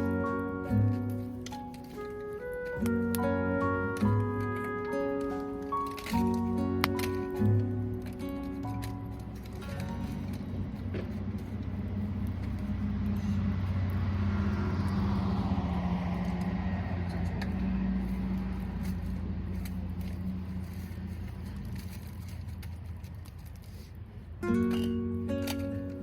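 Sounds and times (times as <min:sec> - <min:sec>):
car passing by: 0:00.0 - 0:21.8.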